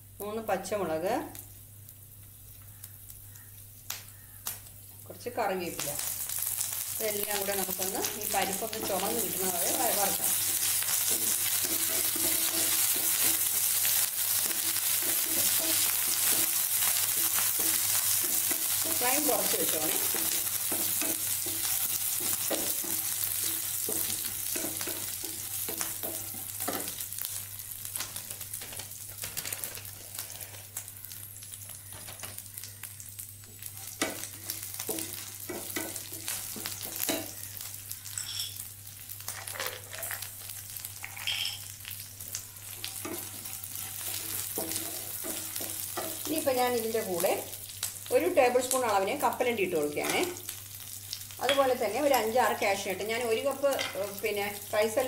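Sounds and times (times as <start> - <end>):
oil sizzling in a pan: 0.0 - 55.0.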